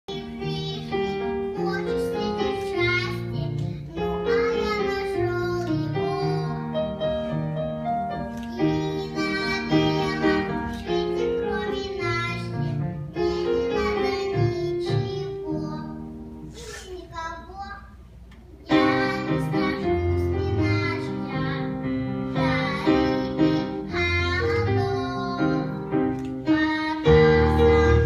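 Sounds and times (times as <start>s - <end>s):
child singing: 0.1s - 6.8s, 8.5s - 16.0s, 18.6s - 25.8s, 26.4s - 28.0s
instrumental accompaniment: 18.3s - 28.0s.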